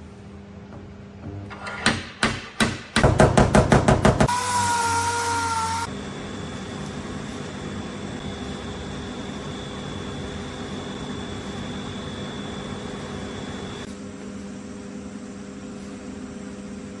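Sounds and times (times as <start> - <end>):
machine hum and hiss: 3.9 - 17.0.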